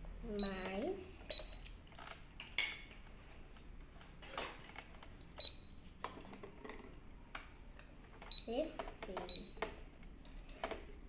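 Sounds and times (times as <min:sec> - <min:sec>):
toy cash register beeping: 0:00.4 - 0:01.7, 0:05.4 - 0:05.9, 0:08.3 - 0:09.6
plastic clicks and taps: 0:06.0 - 0:10.9.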